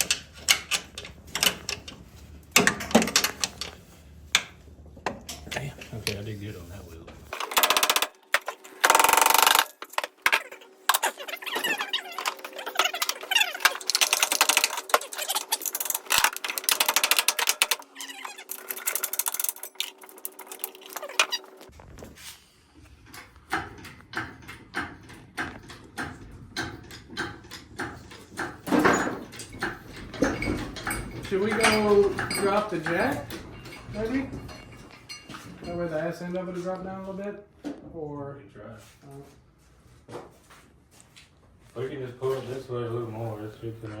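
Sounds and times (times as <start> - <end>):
ratcheting hand tool clicking: 7.4 - 21.4.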